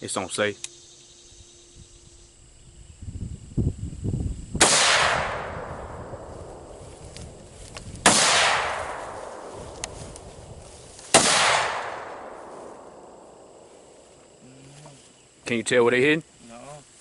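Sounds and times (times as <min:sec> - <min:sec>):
low rumbling noise: 0:02.0 - 0:14.3
rifle shots with echo: 0:04.6 - 0:06.8, 0:08.0 - 0:10.0, 0:11.1 - 0:13.4.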